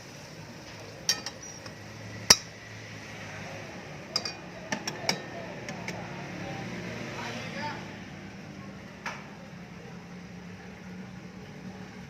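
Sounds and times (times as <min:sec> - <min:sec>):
dishes and utensils clinking: 0:01.0 - 0:02.5, 0:04.1 - 0:06.0.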